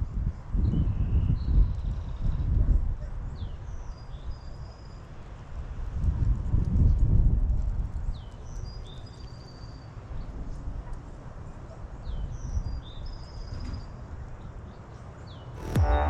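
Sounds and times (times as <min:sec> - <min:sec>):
wind rumble on microphone: 0:00.0 - 0:04.6, 0:05.6 - 0:09.0
music: 0:15.6 - 0:16.0.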